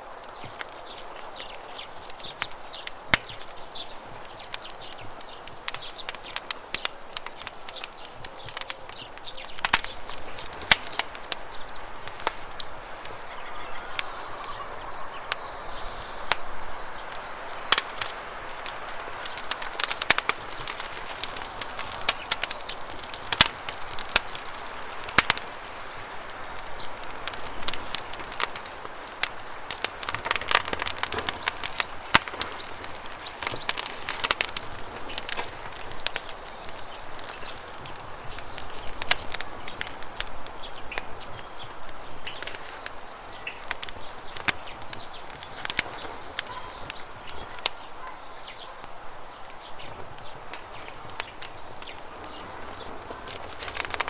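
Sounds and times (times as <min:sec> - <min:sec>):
campfire crackling and popping: 0:00.0 - 0:54.0
faint bird call: 0:12.0 - 0:17.8, 0:45.5 - 0:49.0.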